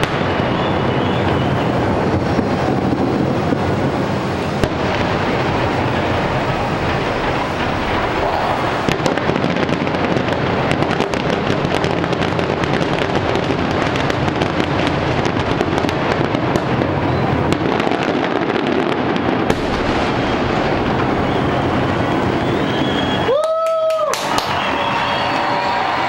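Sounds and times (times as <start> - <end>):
fireworks barrage: 0.0 - 26.0.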